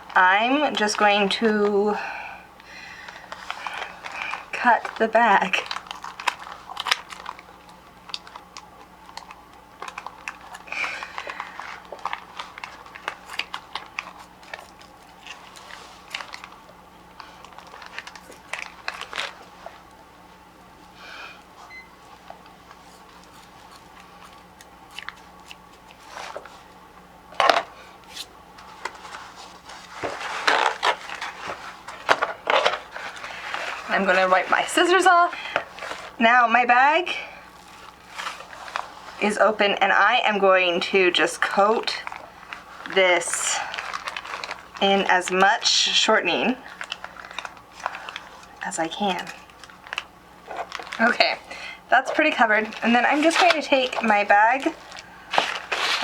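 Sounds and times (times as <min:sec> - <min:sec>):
plastic bag crinkling: 0:00.0 - 0:20.4, 0:21.5 - 0:36.2, 0:37.0 - 0:56.0.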